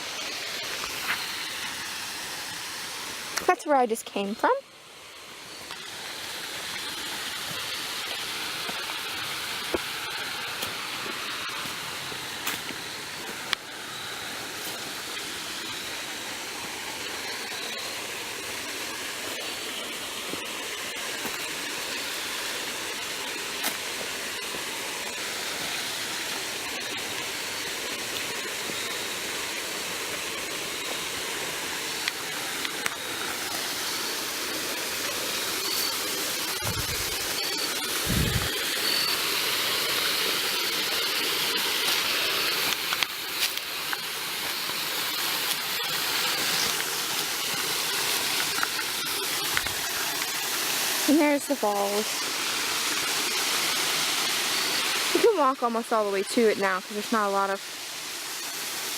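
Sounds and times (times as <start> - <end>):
waterfall rushing: 0.0 - 3.5, 5.1 - 58.9
crickets chirping: 24.1 - 55.2.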